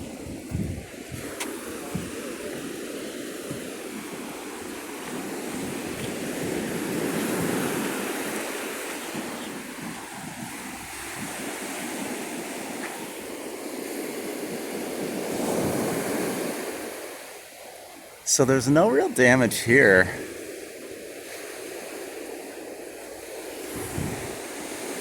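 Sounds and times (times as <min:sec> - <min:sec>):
surf: 0:00.0 - 0:25.0.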